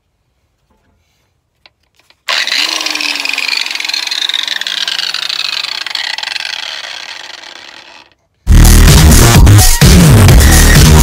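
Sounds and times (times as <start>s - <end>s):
electric grinder grinding steel: 2.3s - 8.2s.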